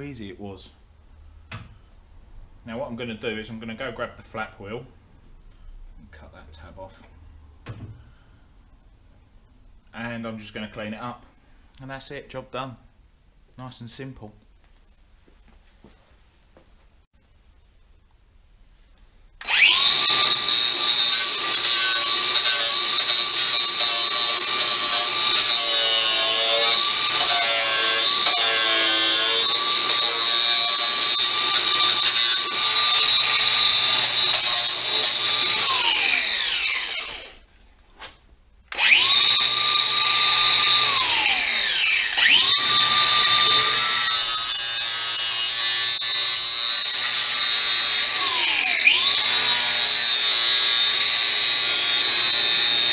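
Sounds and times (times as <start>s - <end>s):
power tool grinding metal: 19.4s - 37.4s, 38.7s - 52.9s.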